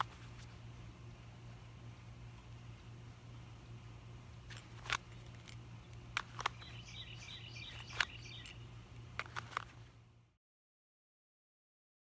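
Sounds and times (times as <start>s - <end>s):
low hum: 0.0s - 10.4s
small bird twittering: 6.5s - 8.6s.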